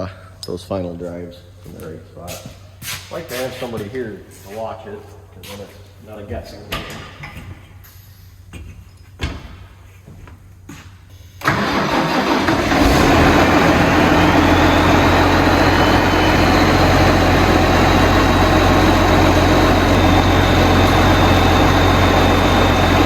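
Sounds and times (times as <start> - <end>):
diesel engine cranking and idling: 11.4 - 23.0.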